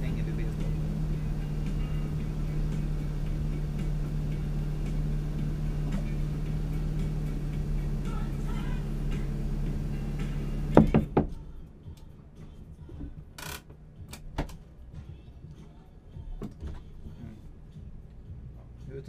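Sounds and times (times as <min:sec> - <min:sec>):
car engine idling: 0:00.0 - 0:19.0
loud clunks: 0:09.2 - 0:11.4.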